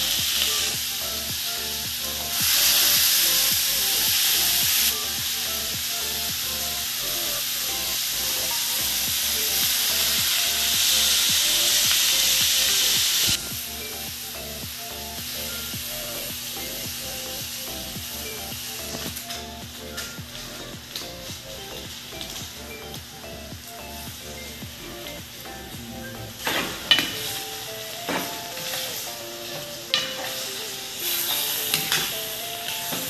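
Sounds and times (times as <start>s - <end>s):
cuttlefish sizzling in a pan: 0.1s - 20.2s, 26.4s - 33.0s.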